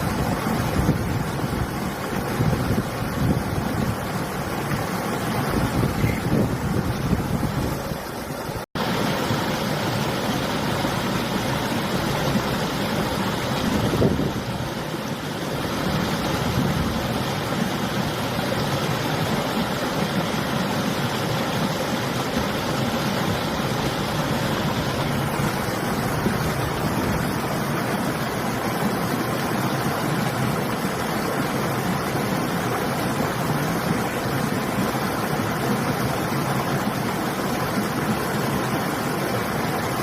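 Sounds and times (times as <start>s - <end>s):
wind on microphone: 0.0s - 8.6s, 12.2s - 15.0s, 15.6s - 18.1s, 22.4s - 28.2s
river water flowing: 0.0s - 40.0s.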